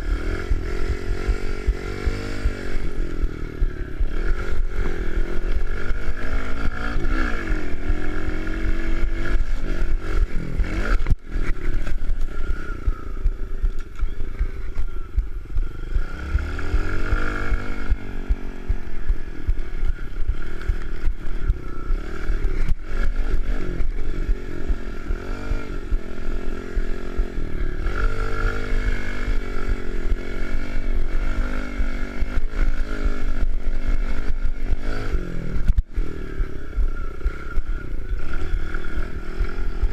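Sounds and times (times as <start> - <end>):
pit bike engine revving: 0.0 - 39.9.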